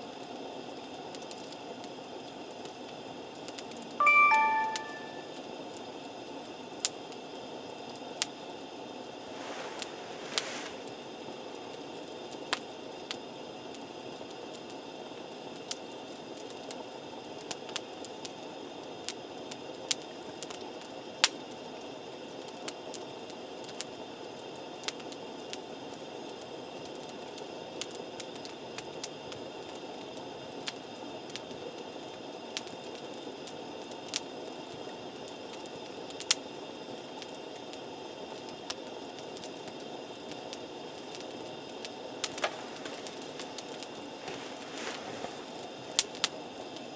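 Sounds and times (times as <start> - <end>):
campfire burning hiss: 0.0 - 3.8, 6.6 - 46.9
burning wood popping and snapping: 42.2 - 46.3.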